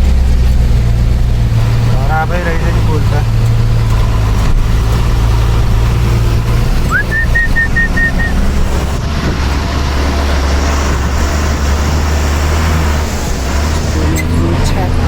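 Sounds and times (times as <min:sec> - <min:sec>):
truck engine droning: 0:00.0 - 0:15.0
high whistle and quick pips: 0:06.8 - 0:08.5.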